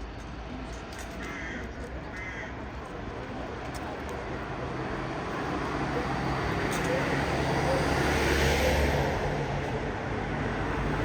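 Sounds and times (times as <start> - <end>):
trolleybus rumble: 2.8 - 11.0.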